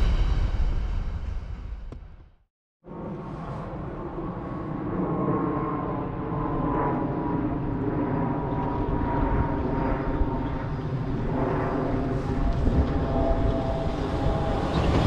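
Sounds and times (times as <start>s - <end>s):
electric train humming and whining: 8.4s - 15.0s.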